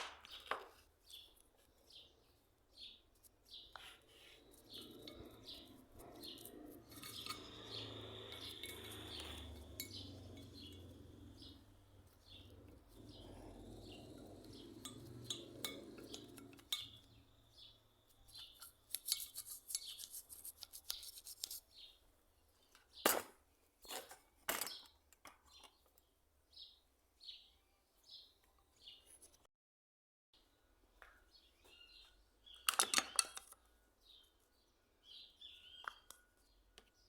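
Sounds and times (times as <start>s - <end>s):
faint bird chirps: 0.3s - 18.8s.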